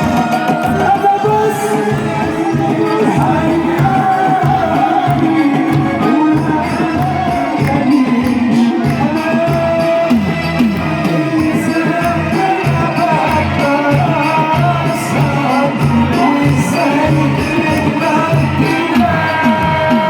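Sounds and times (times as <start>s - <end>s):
hand drums: 0.0s - 20.0s.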